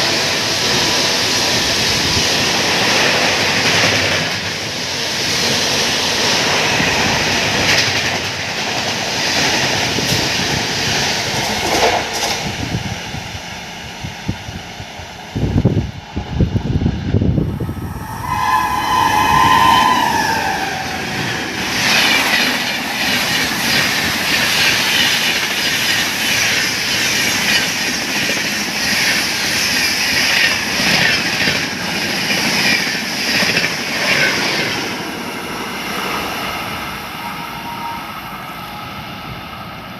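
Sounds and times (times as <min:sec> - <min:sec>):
train wheels clattering over rails: 0:00.0 - 0:13.0, 0:20.2 - 0:36.5
train horn: 0:17.9 - 0:21.8, 0:36.8 - 0:39.6.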